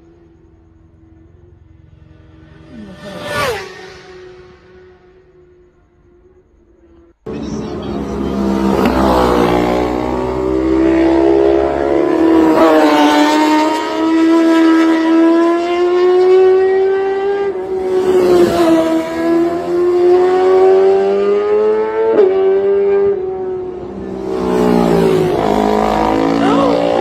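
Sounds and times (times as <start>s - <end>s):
motorcycle engine at high revs: 7.4s - 27.0s.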